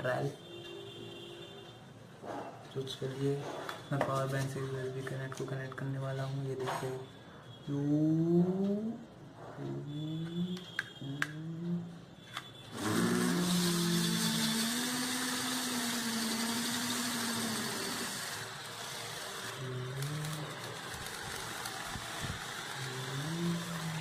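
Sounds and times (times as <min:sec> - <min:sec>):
toy motors with fans whirring: 0:12.3 - 0:24.0.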